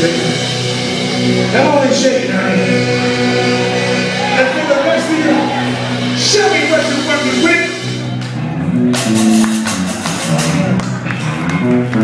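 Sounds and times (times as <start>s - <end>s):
live blues band playing: 0.0s - 12.0s
person singing: 1.5s - 5.6s
drum and cymbal hits: 8.9s - 10.9s.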